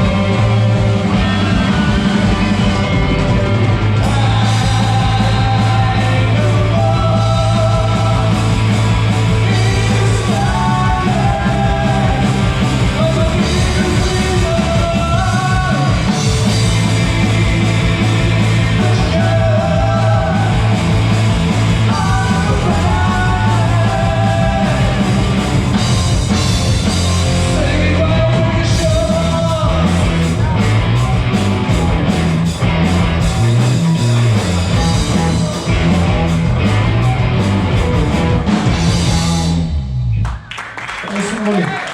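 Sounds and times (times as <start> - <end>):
person singing: 0.0 - 21.0, 21.8 - 25.9
heavy drum strikes: 0.0 - 39.6
rock band playing: 0.0 - 40.8.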